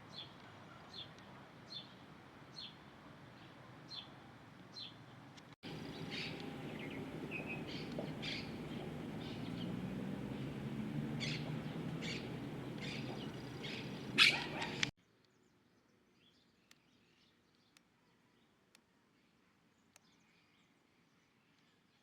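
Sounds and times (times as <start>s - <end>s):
low background rumble: 5.6s - 14.9s
wild birds chirping: 5.6s - 15.4s.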